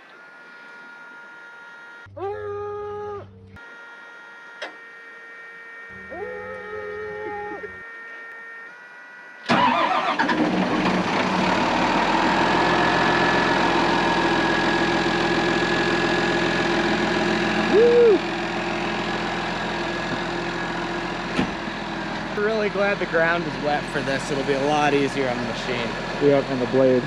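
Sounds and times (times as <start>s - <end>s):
brief tone: 0.0s - 9.5s
snowcat engine running: 4.6s - 27.0s.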